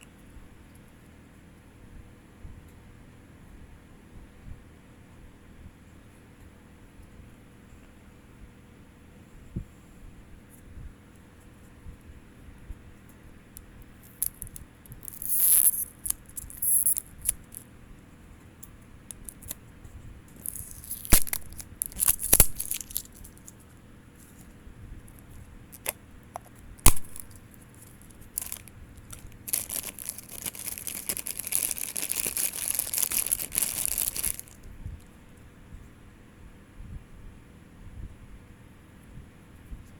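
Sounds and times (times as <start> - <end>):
packaging tearing and crinkling: 14.0 - 17.6, 19.1 - 19.6, 20.3 - 23.7, 25.1 - 34.7
plastic clicks: 25.8 - 34.6.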